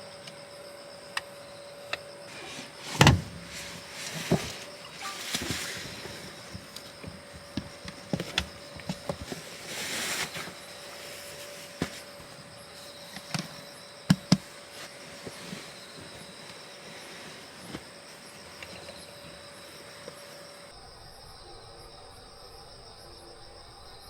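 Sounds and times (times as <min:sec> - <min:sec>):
insects calling: 0:00.0 - 0:24.0.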